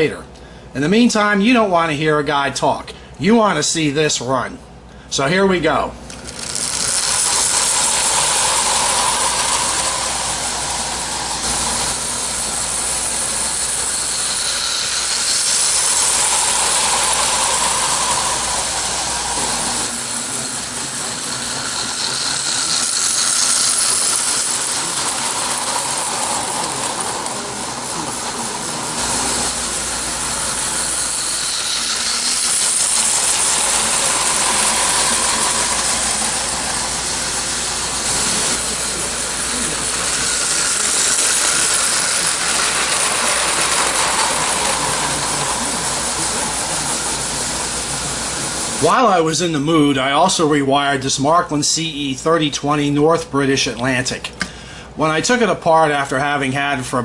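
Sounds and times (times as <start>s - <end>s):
toy train whirring: 6.0s - 50.4s
rail clatter: 30.6s - 47.8s.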